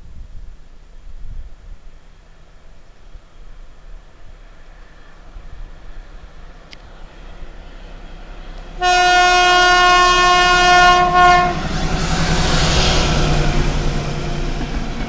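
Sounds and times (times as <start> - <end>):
train wheel noise: 2.0 - 15.0
locomotive engine: 2.4 - 15.0
locomotive horn: 8.8 - 13.9.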